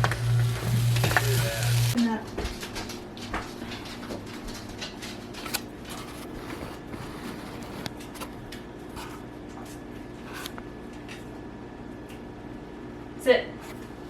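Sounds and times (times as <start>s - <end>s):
steady low hum: 0.0s - 2.4s.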